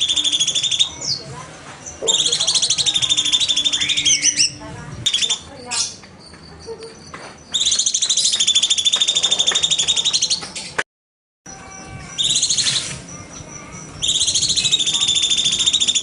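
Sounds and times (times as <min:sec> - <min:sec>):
bird rattling trill: 0:02.1 - 0:10.4, 0:11.6 - 0:16.0.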